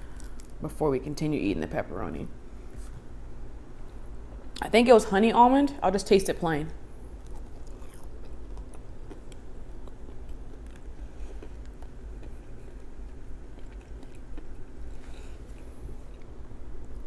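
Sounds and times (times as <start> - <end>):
chewing with crunchy clicks: 7.2 - 17.0.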